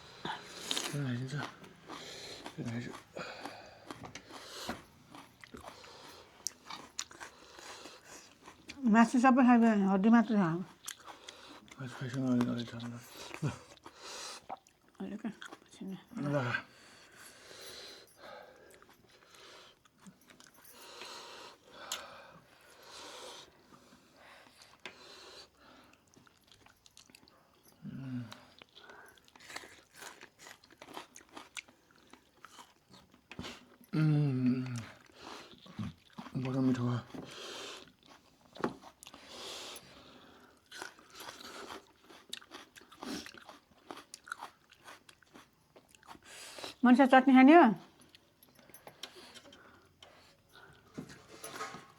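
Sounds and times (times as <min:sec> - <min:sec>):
soft chewing: 0:00.0 - 0:46.8, 0:47.8 - 0:51.9
breathing: 0:03.2 - 0:04.9, 0:13.9 - 0:14.5, 0:16.6 - 0:19.8, 0:20.5 - 0:26.0, 0:37.2 - 0:37.9, 0:39.1 - 0:40.6, 0:48.5 - 0:51.7.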